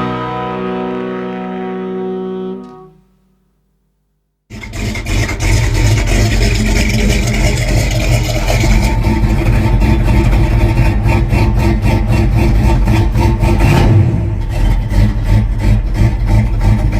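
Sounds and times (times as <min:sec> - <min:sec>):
rapid regular pulsing: 0:04.5 - 0:13.6
engine running steadily: 0:04.5 - 0:16.9.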